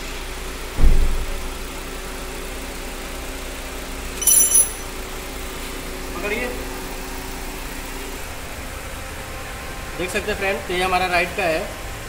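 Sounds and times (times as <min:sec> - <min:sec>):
car engine idling: 0:00.0 - 0:12.0
dull low thump: 0:00.8 - 0:01.5
short high-pitched ring: 0:04.2 - 0:05.0.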